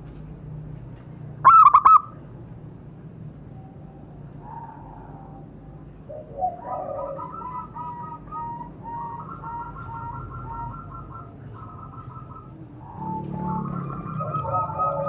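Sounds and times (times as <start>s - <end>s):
dove cooing: 4.4s - 15.0s.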